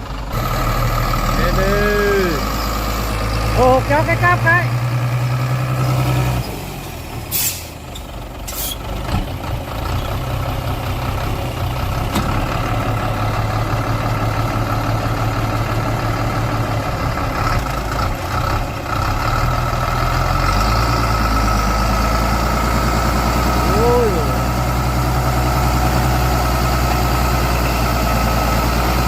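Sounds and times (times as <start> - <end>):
diesel truck engine under load: 0.0 - 29.0
air brake hisses: 7.3 - 7.8, 8.5 - 8.8.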